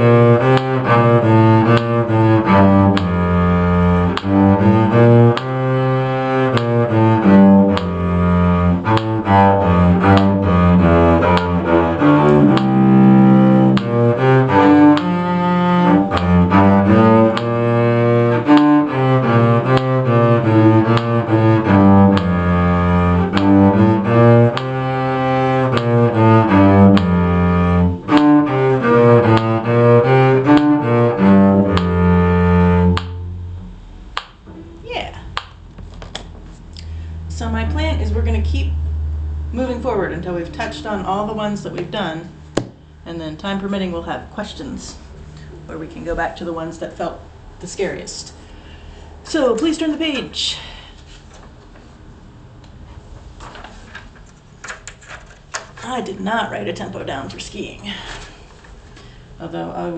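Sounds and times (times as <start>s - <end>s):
bowed string music: 0.0s - 48.5s.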